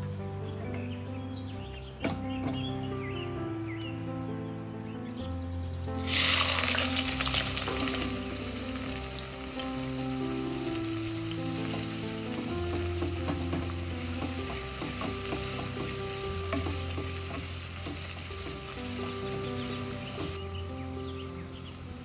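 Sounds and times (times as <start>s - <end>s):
food sizzling in hot oil: 6.0s - 20.4s.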